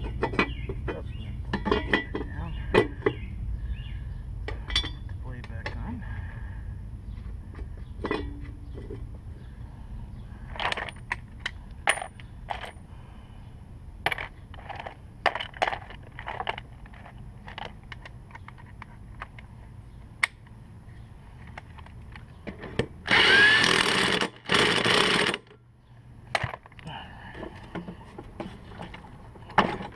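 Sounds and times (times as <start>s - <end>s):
metal tools clinking: 4.5s - 5.0s, 10.5s - 11.2s, 11.8s - 12.8s, 14.1s - 19.4s
power driver running: 23.0s - 25.5s.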